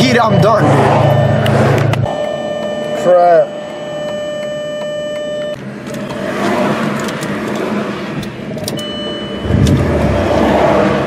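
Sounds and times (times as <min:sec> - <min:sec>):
passing road traffic: 0:00.0 - 0:03.0, 0:03.6 - 0:11.0
car warning chime: 0:00.0 - 0:05.6, 0:08.6 - 0:10.2.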